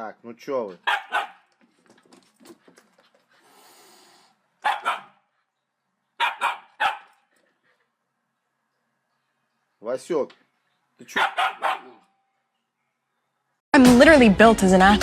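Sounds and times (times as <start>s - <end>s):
dog barking: 0.8s - 1.5s, 4.6s - 5.3s, 6.2s - 7.2s, 11.1s - 12.1s.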